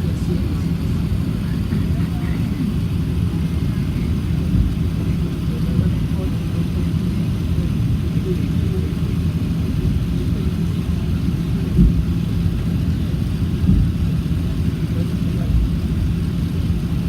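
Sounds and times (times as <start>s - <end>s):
jet engines rumbling: 0.0s - 17.0s
wind thumps on microphone: 4.3s - 5.3s, 11.6s - 14.4s.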